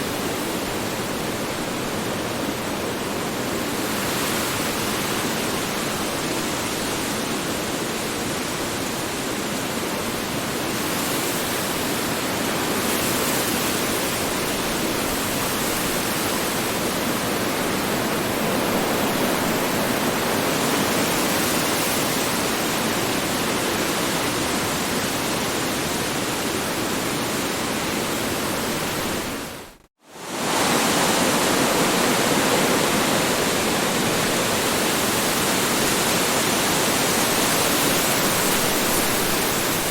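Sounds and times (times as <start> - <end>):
strong wind blowing: 14.3 - 39.9.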